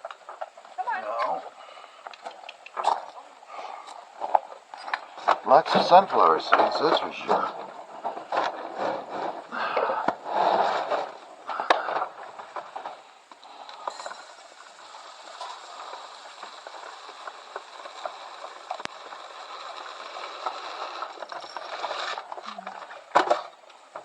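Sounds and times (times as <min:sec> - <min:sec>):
sharp clicks: 0:02.0 - 0:03.2.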